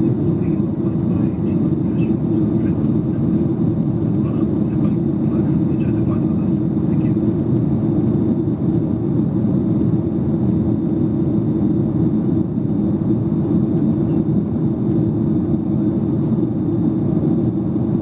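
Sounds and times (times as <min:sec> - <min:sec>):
airplane cabin rumble: 0:00.0 - 0:18.0
jet engine and airflow noise: 0:00.0 - 0:18.0.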